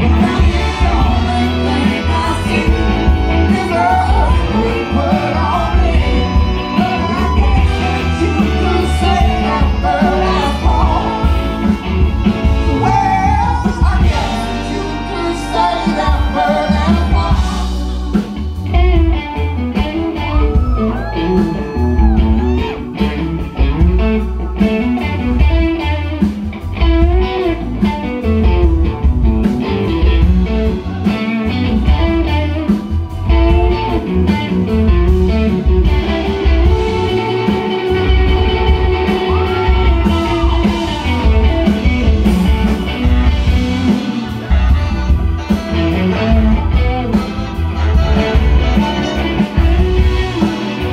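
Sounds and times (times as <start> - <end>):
bass: 0.0 - 50.9
drums: 0.0 - 50.9
electric guitar lead: 0.0 - 50.9.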